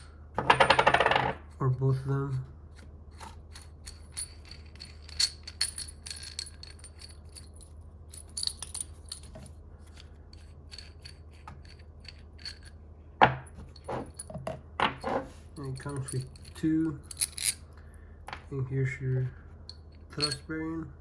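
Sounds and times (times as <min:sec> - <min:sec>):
small steel parts clinking: 0:03.2 - 0:12.8, 0:13.4 - 0:18.4, 0:19.7 - 0:20.6.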